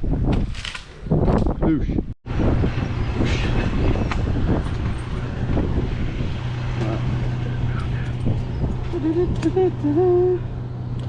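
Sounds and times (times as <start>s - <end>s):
low engine drone: 2.3s - 11.0s.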